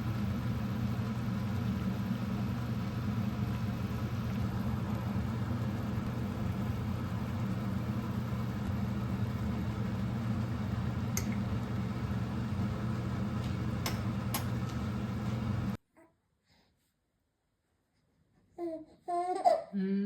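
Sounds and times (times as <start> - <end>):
motor hum: 0.0 - 15.8.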